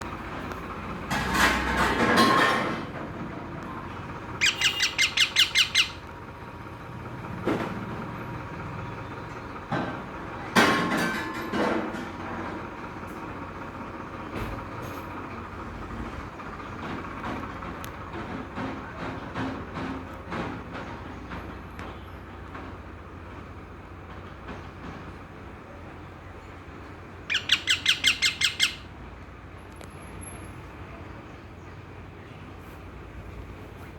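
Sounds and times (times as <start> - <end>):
parrot squawking: 4.4 - 6.0, 27.3 - 28.9.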